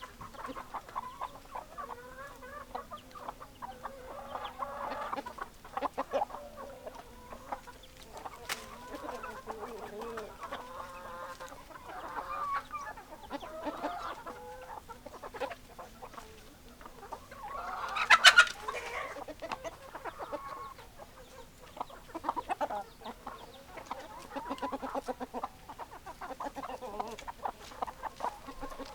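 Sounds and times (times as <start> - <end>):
chickens clucking: 0.0 - 28.9.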